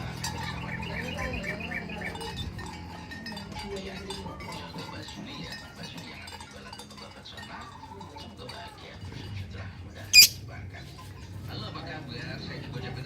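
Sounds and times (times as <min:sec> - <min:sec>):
lovebird chirping: 0:10.2 - 0:10.4.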